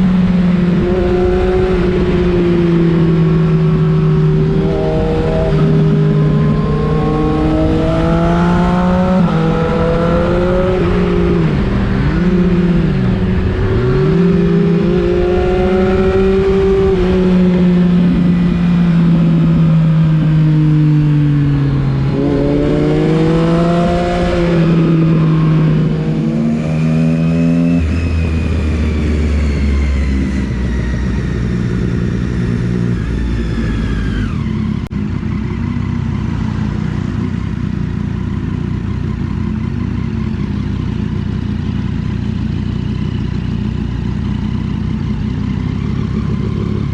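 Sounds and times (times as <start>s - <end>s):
wind noise: 0.0s - 34.5s
motorcycle engine revving: 0.0s - 46.9s.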